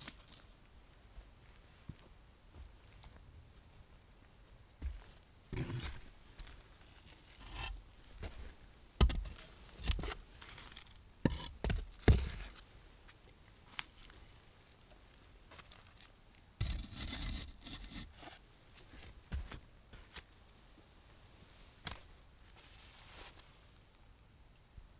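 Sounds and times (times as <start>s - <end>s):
scraping rustle: 21.6s - 23.7s.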